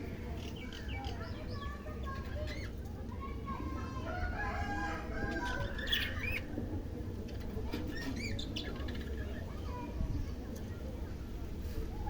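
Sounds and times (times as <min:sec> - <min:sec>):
budgerigars chirping and squawking: 0:05.2 - 0:06.5, 0:07.9 - 0:09.5.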